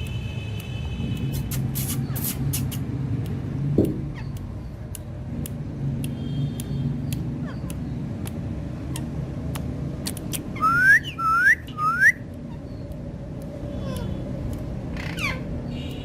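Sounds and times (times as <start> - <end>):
parrot whistling: 10.6 - 12.2.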